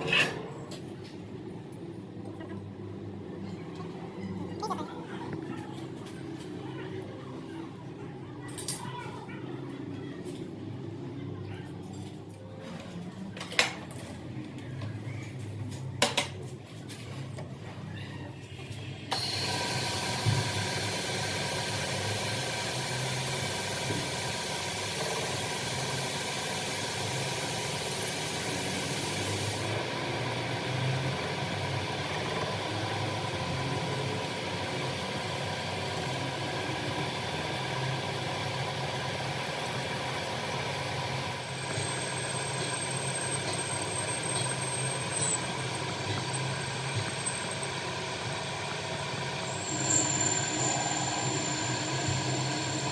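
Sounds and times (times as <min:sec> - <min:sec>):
workshop machine humming: 0:12.7 - 0:52.9.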